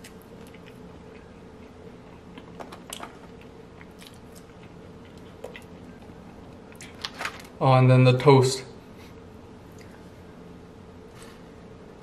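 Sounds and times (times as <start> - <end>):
person chewing fries: 0.0 - 7.2.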